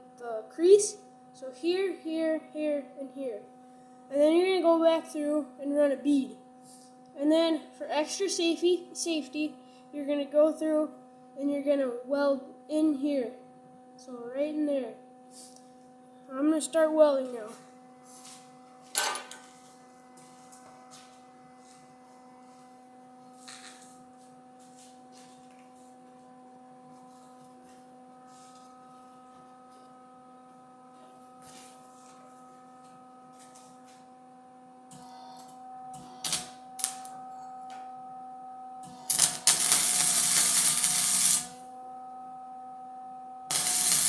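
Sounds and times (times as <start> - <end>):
electrical hum: 16.1 - 44.0
welding arc crackling: 36.0 - 37.1, 38.9 - 41.7, 43.5 - 44.0.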